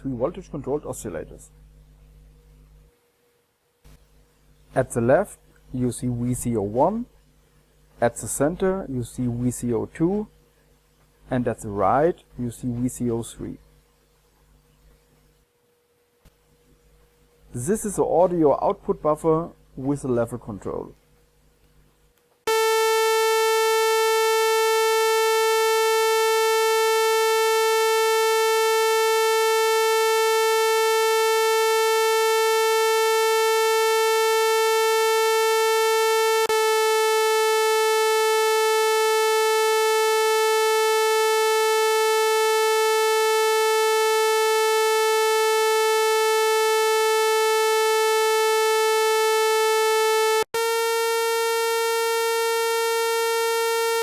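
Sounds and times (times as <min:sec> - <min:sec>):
oscillator buzzy tone: 0:22.5 - 0:54.0.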